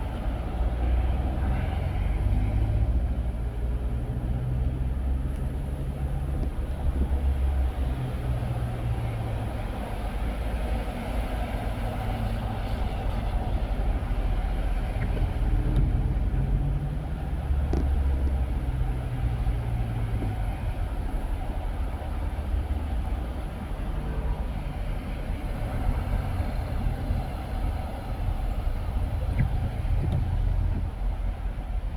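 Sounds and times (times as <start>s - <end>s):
car engine and tyre rumble: 0.0s - 31.9s.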